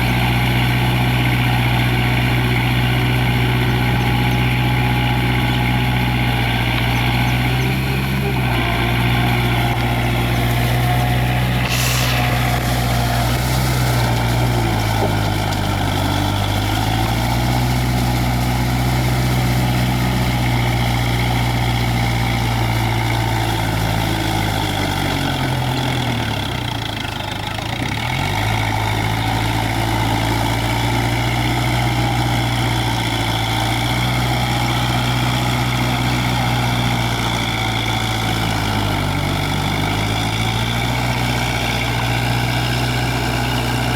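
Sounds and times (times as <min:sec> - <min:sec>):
tractor diesel engine running: 0:00.0 - 0:43.9
brief hiss: 0:11.6 - 0:14.4.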